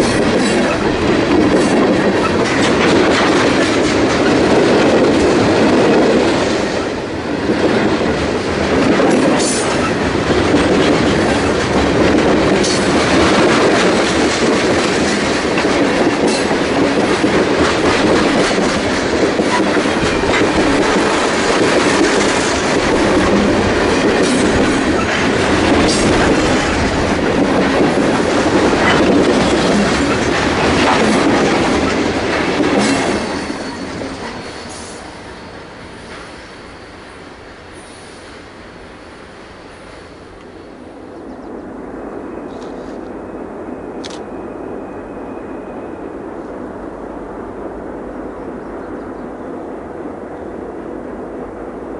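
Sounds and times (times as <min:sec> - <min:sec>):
steel wheels rumbling on rails: 0:00.0 - 0:51.9
wheels clicking over rail joints: 0:07.6 - 0:35.0.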